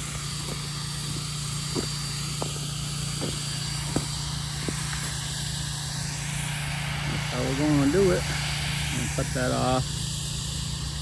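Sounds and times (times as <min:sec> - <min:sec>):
engine running in low drone: 0:00.0 - 0:11.0.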